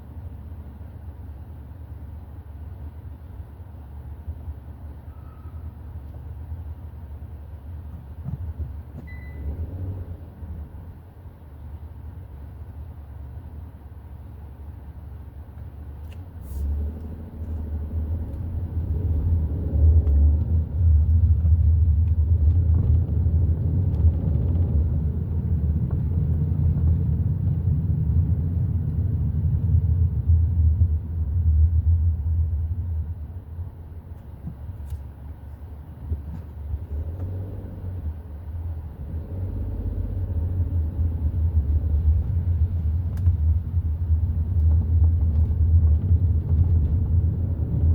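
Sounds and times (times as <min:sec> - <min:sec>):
car engine and road noise: 0:00.0 - 0:47.9.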